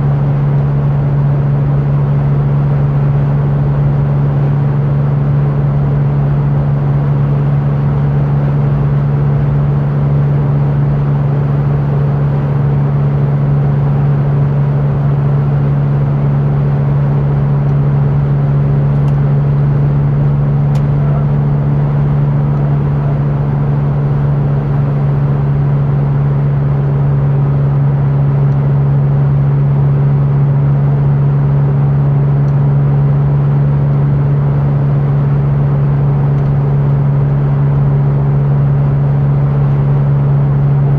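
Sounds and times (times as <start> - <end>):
car engine droning: 0.0 - 40.9
road noise: 14.7 - 28.4.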